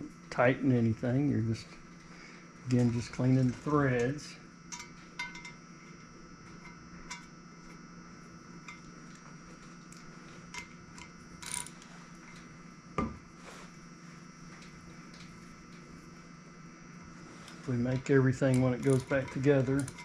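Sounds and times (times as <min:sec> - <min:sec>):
faint steady hum: 0:00.0 - 0:20.0
ratchet wrench clicking: 0:11.0 - 0:11.7.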